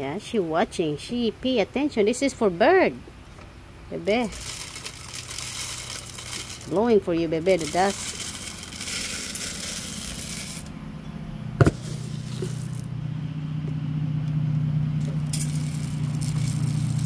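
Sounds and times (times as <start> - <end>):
low engine hum: 3.0 - 17.0
rustling and rattling: 4.1 - 10.7, 11.6 - 12.9, 15.0 - 17.0.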